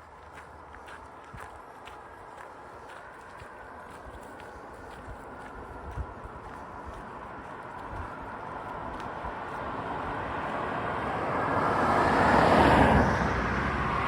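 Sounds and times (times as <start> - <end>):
vehicle passing: 0.0 - 14.0.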